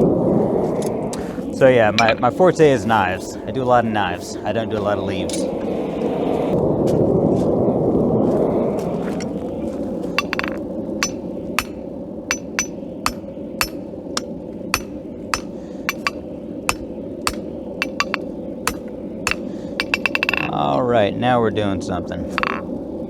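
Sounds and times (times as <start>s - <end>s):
hammer striking steel on anvil: 10.2s - 20.6s, 22.4s - 22.6s.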